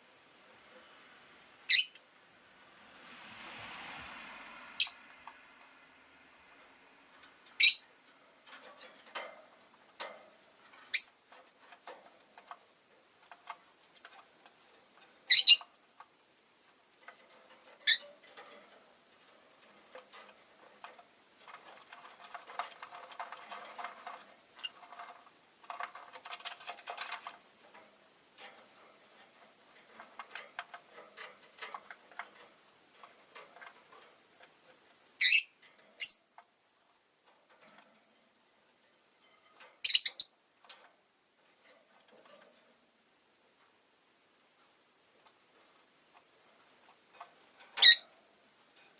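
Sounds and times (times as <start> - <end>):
parrot high sharp calls: 1.7 - 2.0, 35.2 - 36.2
soft clicking and rustling: 6.4 - 48.9.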